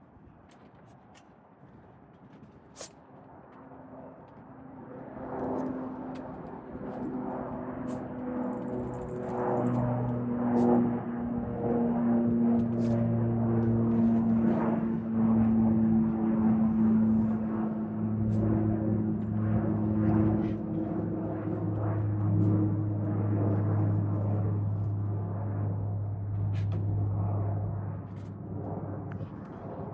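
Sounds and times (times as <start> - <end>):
propeller aircraft drone: 0.0 - 29.9.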